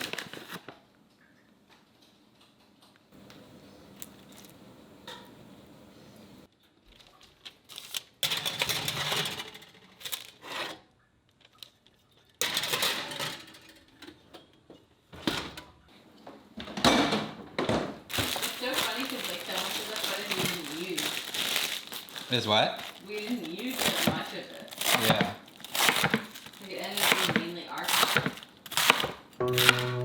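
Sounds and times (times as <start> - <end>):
utensils and dishes clattering: 7.8 - 10.8, 11.7 - 15.8, 16.6 - 30.0.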